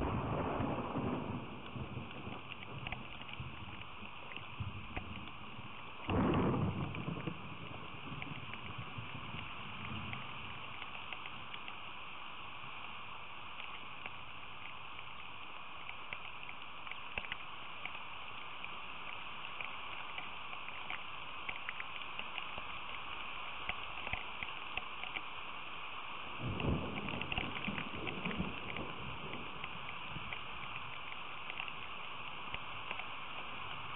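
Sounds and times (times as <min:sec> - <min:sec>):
rain drops ticking: 0:00.0 - 0:33.9.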